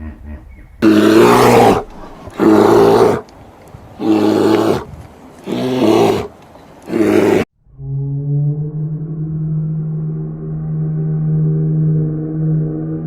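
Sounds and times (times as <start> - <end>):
steady humming tone: 7.7 - 13.0.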